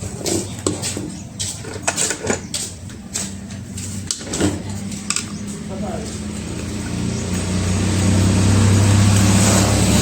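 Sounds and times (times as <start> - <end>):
clicks and knocks of tools: 0.3 - 5.6.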